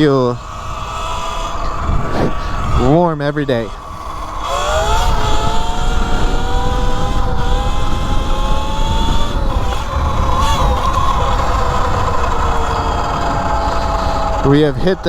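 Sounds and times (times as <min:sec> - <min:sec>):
electric motorbike motor whine: 0:00.0 - 0:15.0
wind rumble on microphone: 0:00.0 - 0:15.0.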